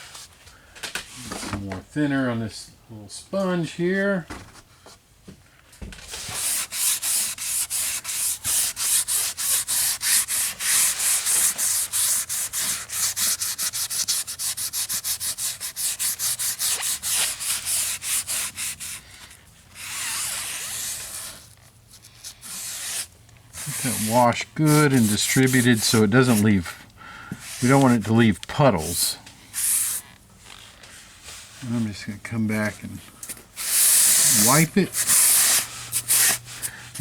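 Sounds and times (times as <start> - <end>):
sponge scrubbing back and forth: 6.2 - 19.2, 22.4 - 26.7, 27.4 - 28.2, 33.6 - 37.0.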